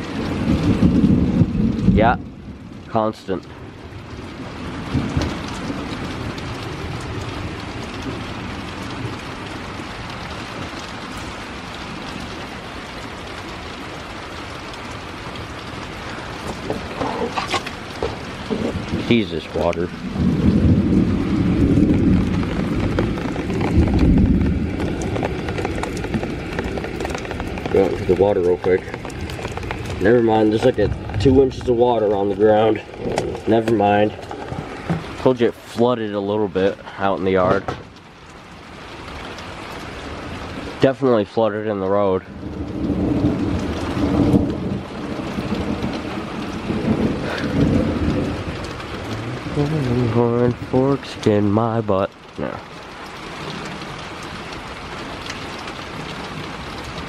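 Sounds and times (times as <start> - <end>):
rolling thunder: 0.0 - 2.9, 3.8 - 10.8, 15.4 - 35.6, 42.2 - 50.7
heavy rain: 0.0 - 57.0
water drips and splashes: 0.0 - 57.0.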